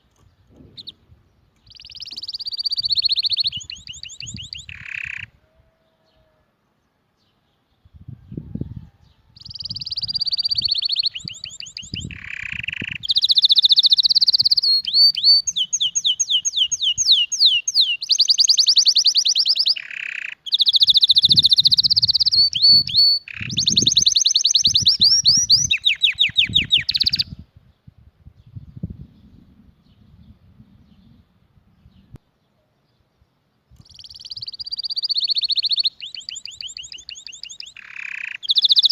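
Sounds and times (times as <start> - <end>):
canary singing trills: 0.2 - 6.4, 9.2 - 27.4, 33.8 - 38.9.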